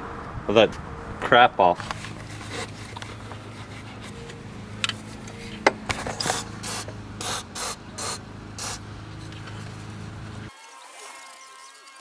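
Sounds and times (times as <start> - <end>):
steady low hum: 0.0 - 10.5
aerosol can spraying: 6.2 - 8.8.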